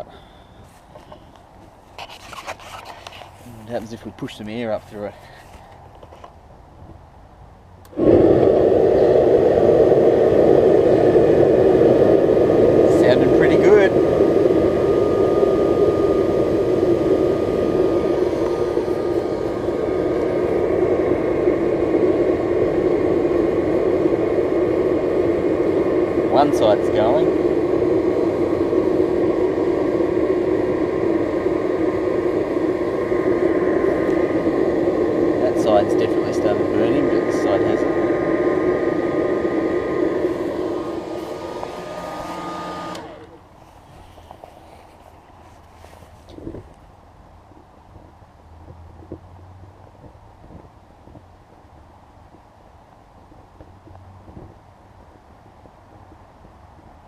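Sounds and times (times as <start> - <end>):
air blower running: 7.8 - 46.6.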